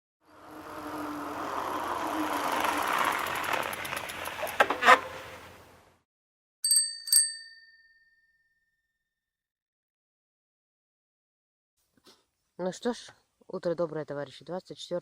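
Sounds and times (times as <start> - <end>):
bicycle bell ringing: 6.6 - 8.8.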